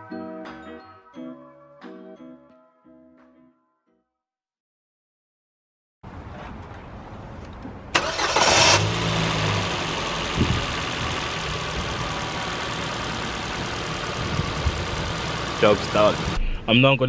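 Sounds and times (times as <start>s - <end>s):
car engine starting and idling: 7.9s - 16.6s.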